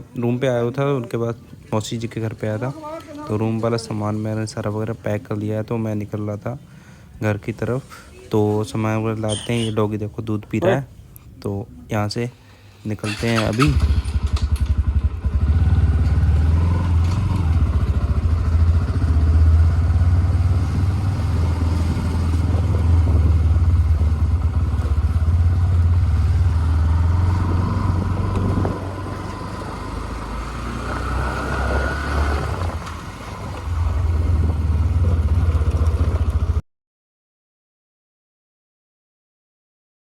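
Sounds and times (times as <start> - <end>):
motorcycle engine running: 13.1 - 36.6.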